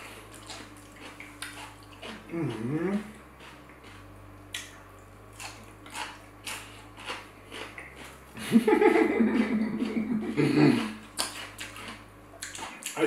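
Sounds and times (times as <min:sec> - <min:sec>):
person chewing with wet smacks: 0:00.0 - 0:08.4, 0:09.0 - 0:13.0.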